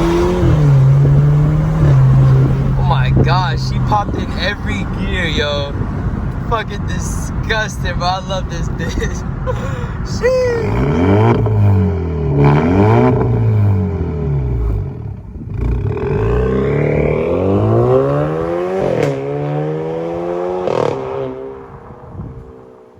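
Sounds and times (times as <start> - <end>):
car exhaust accelerating hard: 0.0 - 22.9
exhaust pop on upshift: 18.9 - 19.3.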